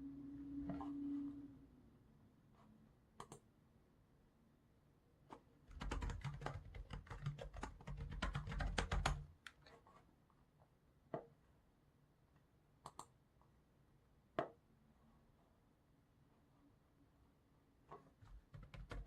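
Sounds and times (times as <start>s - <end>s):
computer keyboard typing: 5.7s - 9.3s, 18.2s - 19.0s.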